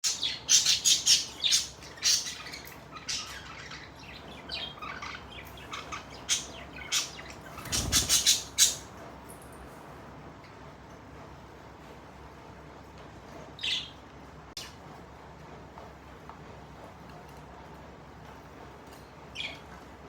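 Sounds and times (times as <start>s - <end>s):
budgerigars chirping and squawking: 0.0s - 8.9s, 19.4s - 19.6s.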